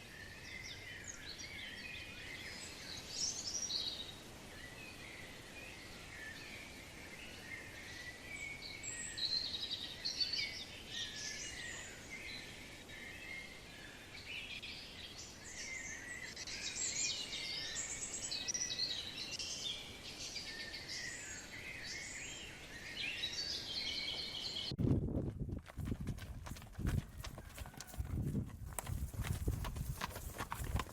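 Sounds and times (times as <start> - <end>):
faint steady hiss: 0.0 - 23.7
small birds chirping: 13.1 - 24.8.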